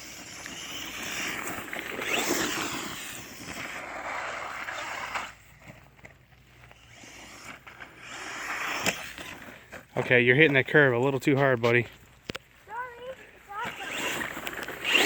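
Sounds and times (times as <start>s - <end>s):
electric motor whine: 0.0s - 5.4s, 13.6s - 15.0s.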